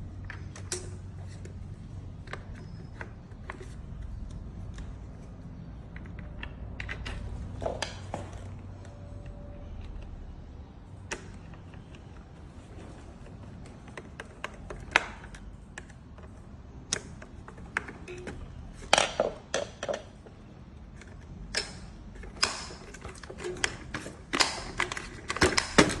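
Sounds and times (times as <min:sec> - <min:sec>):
small hard parts clicking: 0:11.0 - 0:26.0.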